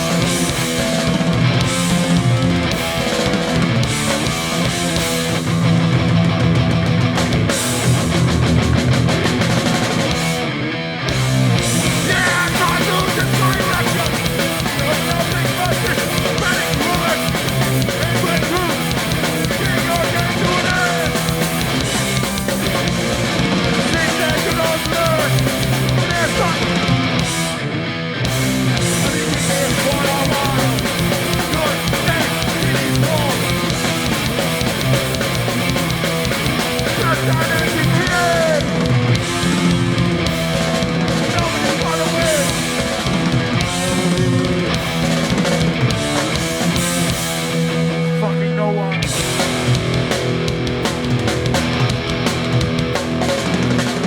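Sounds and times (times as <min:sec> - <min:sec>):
bass guitar: 0:00.0 - 0:54.0
distorted electric guitars: 0:00.0 - 0:54.0
drums: 0:00.0 - 0:54.0.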